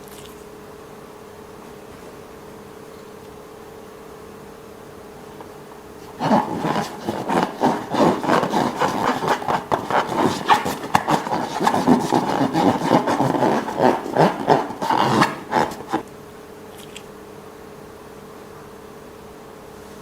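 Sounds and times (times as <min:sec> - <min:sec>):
slime and balloons rubbing: 0:06.0 - 0:16.1.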